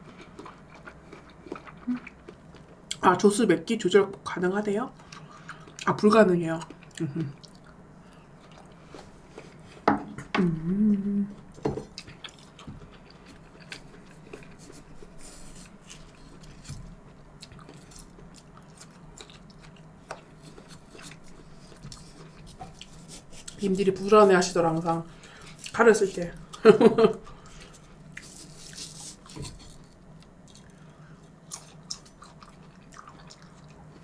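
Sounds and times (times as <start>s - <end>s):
chewing fruit: 0.0s - 3.1s, 4.9s - 9.8s, 10.4s - 24.2s, 24.8s - 34.0s
person humming: 10.3s - 11.5s.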